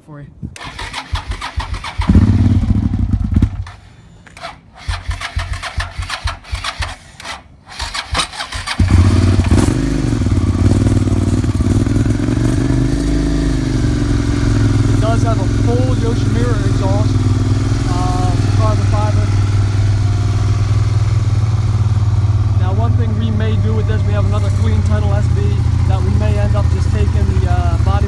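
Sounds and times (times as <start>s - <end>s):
motorcycle engine idling: 0.6s - 4.0s, 4.7s - 7.2s, 7.8s - 28.0s
motorcycle electric starter cranking: 0.6s - 28.0s.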